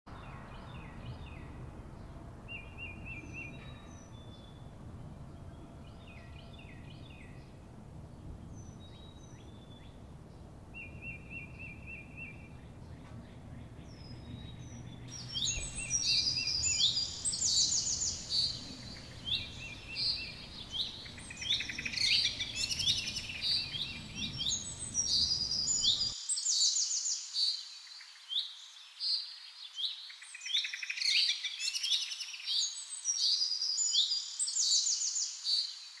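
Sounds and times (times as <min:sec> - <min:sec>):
low background rumble: 0:00.1 - 0:26.1
bird chirping and whistling: 0:14.4 - 0:26.1.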